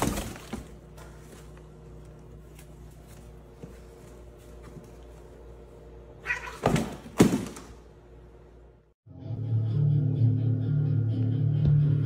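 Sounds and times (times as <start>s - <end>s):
cardboard rustling: 0.0s - 5.2s
cat call: 6.2s - 6.7s
box thumping on wooden floor: 6.6s - 7.8s.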